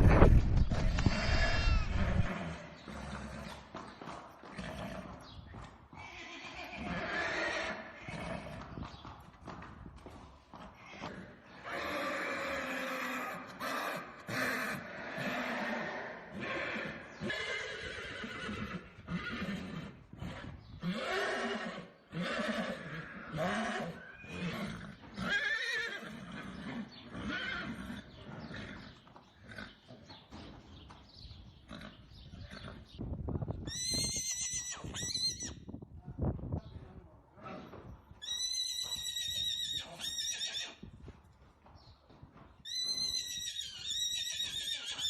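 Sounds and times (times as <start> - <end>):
horses whinnying: 0.7 - 3.8, 4.5 - 5.3, 5.9 - 8.8, 10.7 - 29.8, 31.6 - 33.0, 33.6 - 35.7, 37.4 - 40.9, 42.6 - 45.0.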